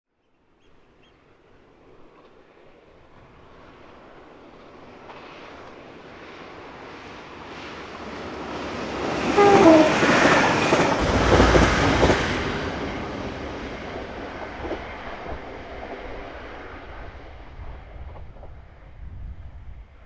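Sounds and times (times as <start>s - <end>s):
train wheels clattering on rails: 8.4s - 16.3s.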